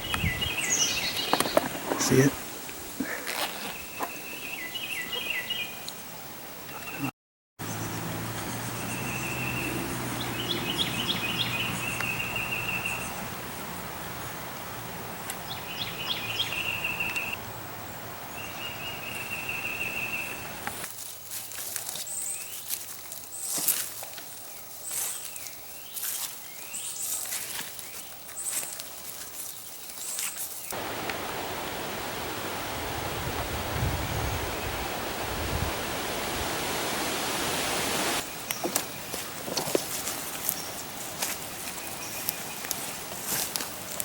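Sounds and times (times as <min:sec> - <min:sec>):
birds trilling: 0:00.0 - 0:02.6, 0:30.8 - 0:39.3
running water rushing: 0:30.7 - 0:38.4.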